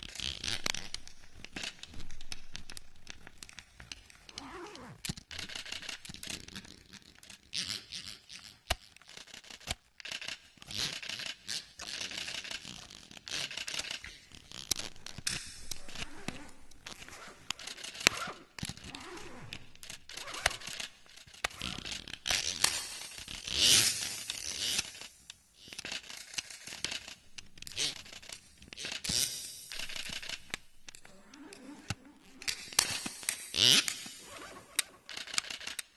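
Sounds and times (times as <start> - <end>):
camera clicks: 5.1 - 6.4, 13.4 - 35.9.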